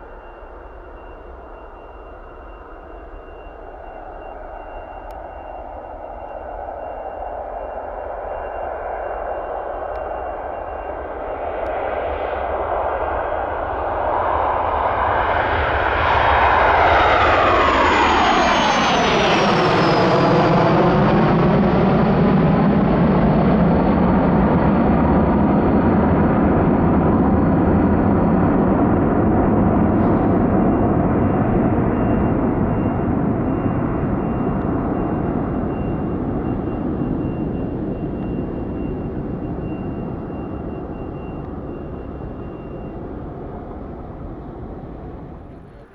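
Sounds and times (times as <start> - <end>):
high jet whine: 0.0 - 45.9
jet engine roar: 0.0 - 45.9.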